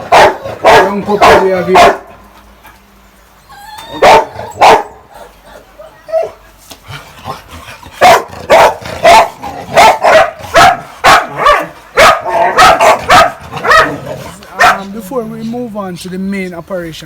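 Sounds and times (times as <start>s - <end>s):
dog barking loudly: 0.0s - 2.2s, 4.0s - 5.3s, 8.0s - 15.0s.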